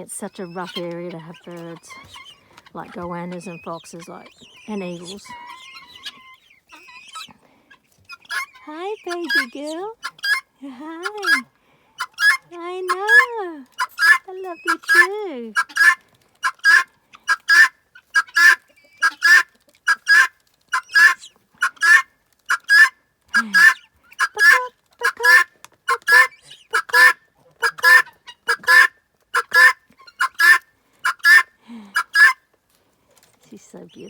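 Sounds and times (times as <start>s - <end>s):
guinea fowl calling: 0.0s - 32.4s.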